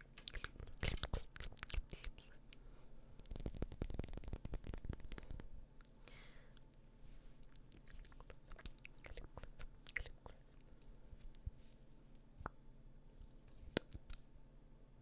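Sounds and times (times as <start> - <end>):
lip and tongue clicks: 0.0 - 2.5, 7.5 - 11.5, 13.2 - 14.2.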